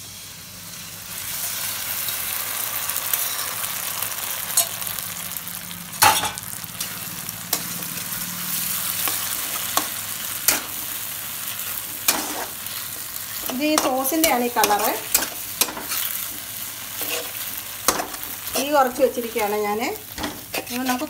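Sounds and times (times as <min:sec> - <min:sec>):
sauce sizzling in a wok: 0:00.0 - 0:21.0
spatula stirring and scraping: 0:06.8 - 0:21.0.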